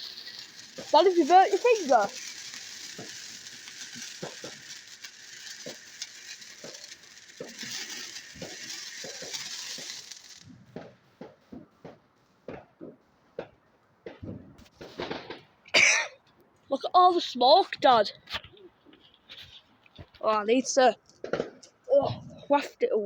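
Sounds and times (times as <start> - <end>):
scattered clicks and pops: 0.0 - 15.6
firework fountain fizzing and crackling: 0.0 - 22.9.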